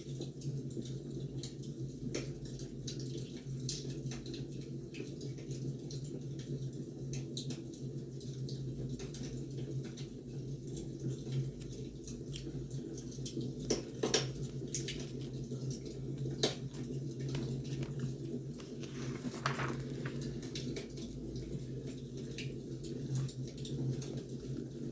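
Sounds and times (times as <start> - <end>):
wood fire crackling: 10.1 - 23.0.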